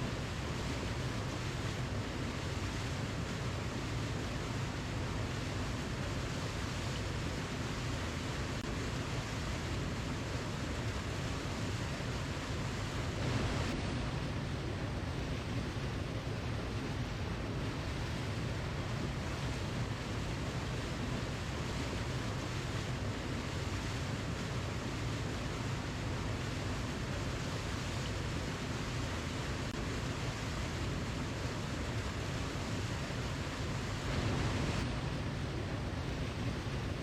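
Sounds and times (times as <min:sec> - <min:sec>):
waterfall rushing: 0:12.2 - 0:24.4, 0:25.3 - 0:37.0.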